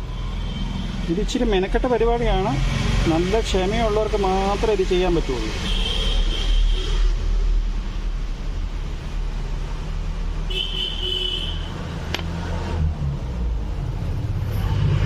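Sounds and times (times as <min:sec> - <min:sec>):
low rumble of engine: 0:11.8 - 0:15.0.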